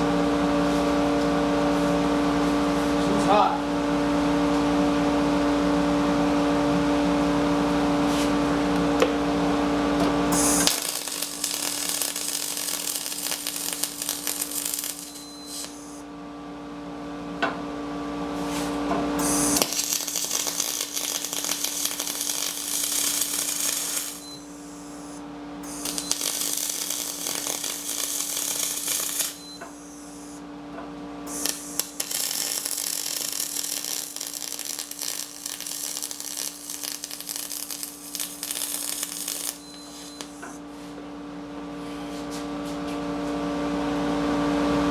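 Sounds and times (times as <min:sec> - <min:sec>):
welding arc hissing and crackling: 0:10.3 - 0:16.0, 0:18.5 - 0:30.4, 0:31.3 - 0:40.6
steady hum: 0:10.3 - 0:16.6, 0:18.3 - 0:40.6.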